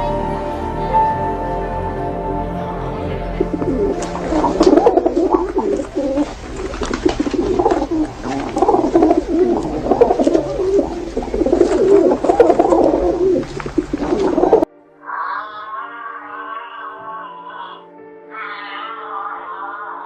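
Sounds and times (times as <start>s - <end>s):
birds calling: 3.3s - 19.1s.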